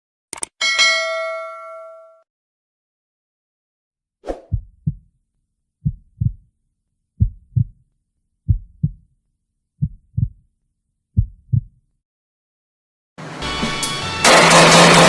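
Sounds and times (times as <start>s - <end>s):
heartbeat thumps: 4.4s - 5.1s, 5.8s - 6.5s, 7.2s - 7.8s, 8.5s - 9.0s, 9.8s - 10.4s, 11.2s - 11.8s.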